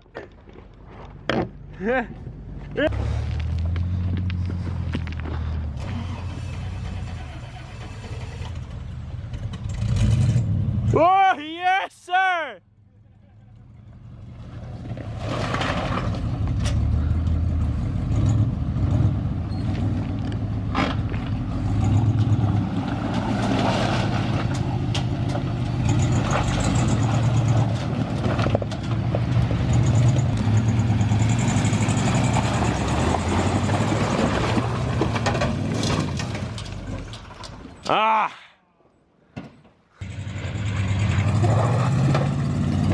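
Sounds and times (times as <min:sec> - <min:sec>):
truck engine driving off-road: 0:00.0 - 0:11.4, 0:12.2 - 0:38.0, 0:40.0 - 0:42.9.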